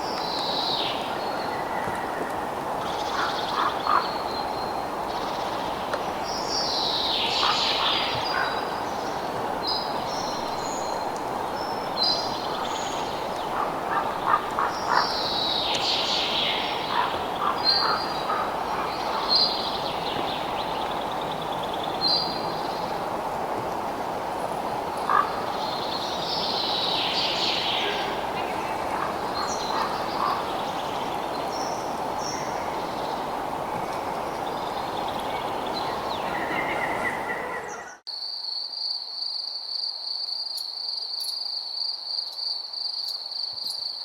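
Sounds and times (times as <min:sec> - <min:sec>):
high bird calls: 0:00.3 - 0:05.4, 0:06.7 - 0:11.1, 0:11.7 - 0:22.9, 0:25.0 - 0:38.0.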